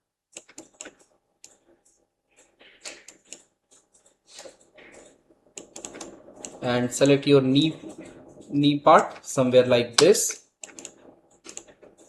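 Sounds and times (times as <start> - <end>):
computer mouse clicks: 0.3 - 1.6, 2.4 - 6.6, 10.0 - 11.8
keyboard clicks: 0.4 - 1.6, 2.6 - 6.6, 10.0 - 12.0.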